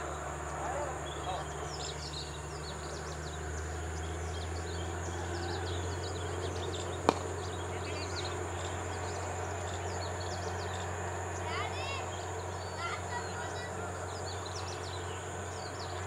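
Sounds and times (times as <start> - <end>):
low hum: 0.0 - 11.5
birds chirping: 0.0 - 16.0
sharp crack: 7.0 - 7.6.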